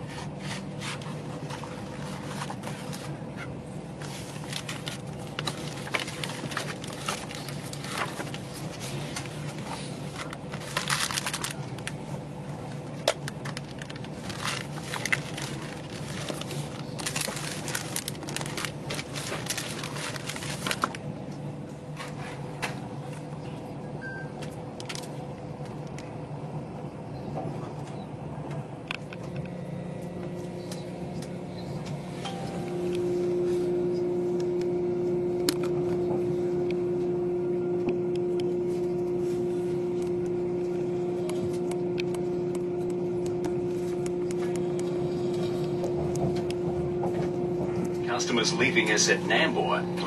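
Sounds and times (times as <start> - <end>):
train carriage hum: 0.0 - 50.0
steady tone: 32.1 - 35.4.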